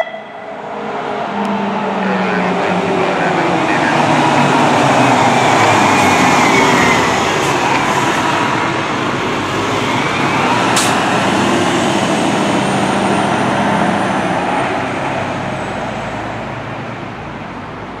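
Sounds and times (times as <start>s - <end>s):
siren wailing: 0.0s - 0.6s
heavy vehicle and traffic noise: 0.0s - 18.0s
sharp click: 10.8s - 11.0s.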